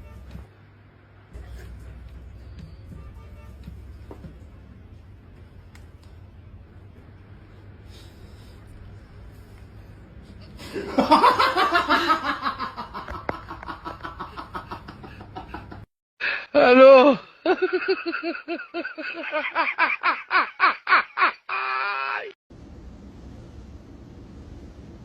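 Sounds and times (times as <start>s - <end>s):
hearty laughter: 10.6s - 15.9s, 17.4s - 21.9s.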